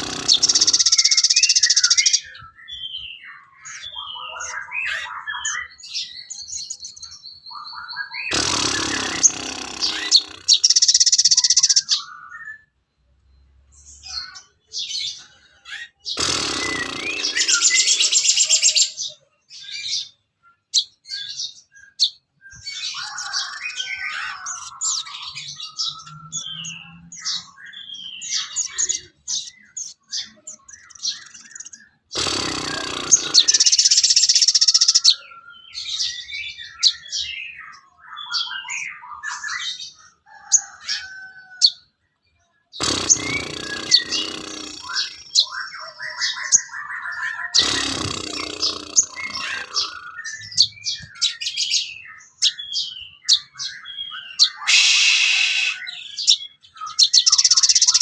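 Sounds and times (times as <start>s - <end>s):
harsh buzzing burst: 0.0s - 1.0s, 8.3s - 10.9s, 16.1s - 18.0s, 32.1s - 34.0s, 42.8s - 45.2s, 47.6s - 50.1s
songbirds singing: 0.0s - 58.0s.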